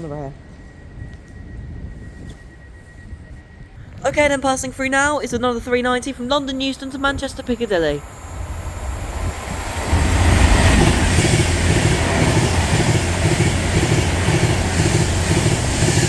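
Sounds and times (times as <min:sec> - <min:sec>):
electric train passing at speed: 0:00.0 - 0:16.0
wheels clattering over rail joints: 0:09.3 - 0:16.0.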